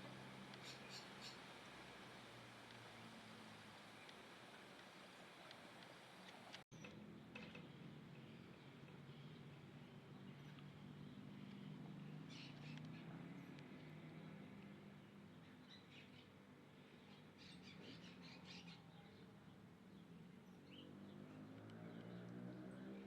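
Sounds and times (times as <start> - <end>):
small birds chirping: 0.5 - 1.6, 4.8 - 23.0.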